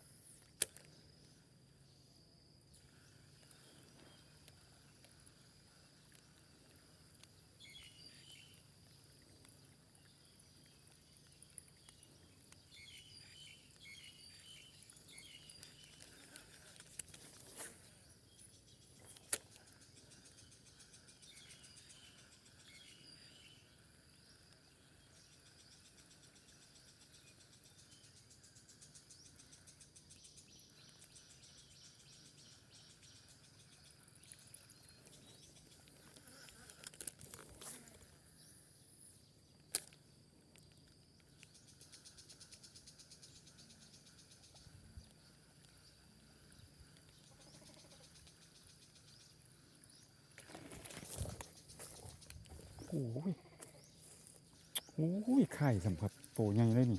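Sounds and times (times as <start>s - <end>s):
insects chirring: 0.0s - 56.9s
birds chirping: 46.6s - 56.9s.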